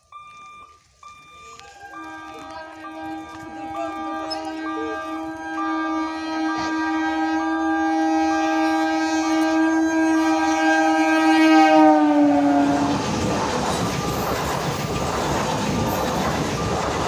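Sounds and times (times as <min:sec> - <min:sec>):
train wheels running on rails: 0:00.0 - 0:17.0
train horn blast: 0:01.5 - 0:13.2.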